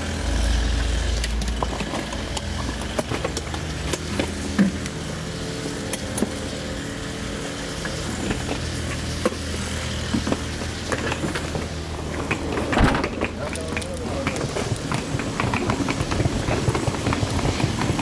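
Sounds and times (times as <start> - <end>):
luggage knocks and clicks: 12.2 - 13.8.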